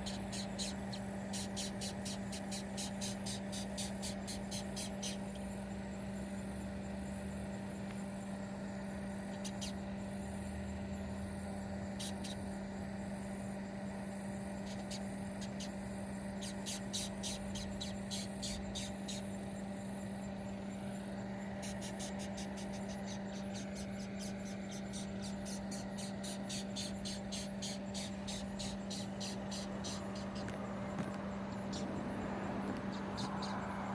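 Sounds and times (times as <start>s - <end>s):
beetle squeaking: 0.0s - 5.5s, 9.3s - 9.9s, 11.8s - 12.9s, 14.5s - 19.6s, 21.0s - 33.9s.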